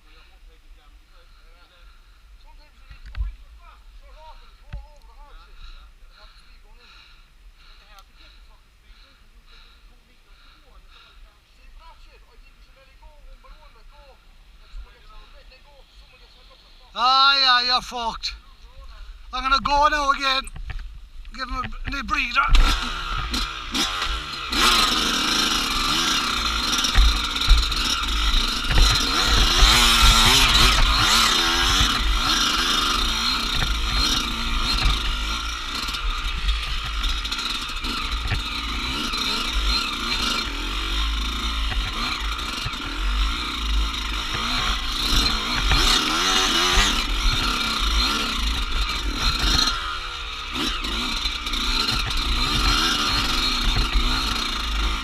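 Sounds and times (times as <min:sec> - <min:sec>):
dirt bike engine revving: 0:21.4 - 0:55.0
low rumble and clatter: 0:21.6 - 0:55.0.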